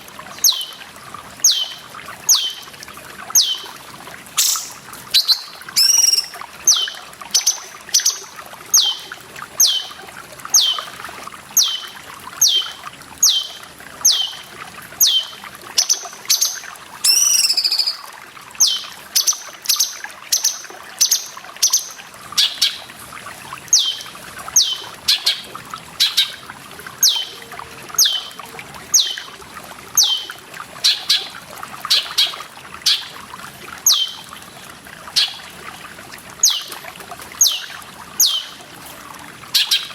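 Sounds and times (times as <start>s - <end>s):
trickle of running water: 0.0s - 39.9s
bird calling: 0.4s - 0.8s, 1.4s - 2.7s, 3.4s - 3.7s, 4.4s - 10.0s, 11.6s - 22.8s, 23.7s - 26.4s, 27.0s - 28.4s, 30.0s - 31.3s, 33.9s - 34.2s, 37.4s - 38.6s.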